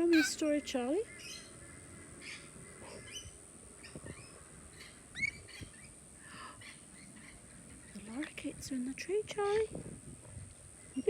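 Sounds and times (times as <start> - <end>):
loud rising bird call: 0.0 - 0.4
birds chirping: 0.0 - 3.2.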